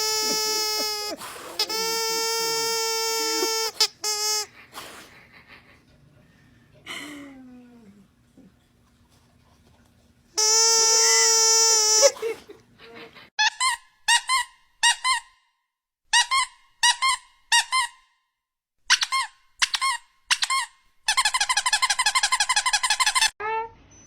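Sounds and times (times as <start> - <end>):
short high squeaks: 0.0 - 4.5, 10.4 - 12.2.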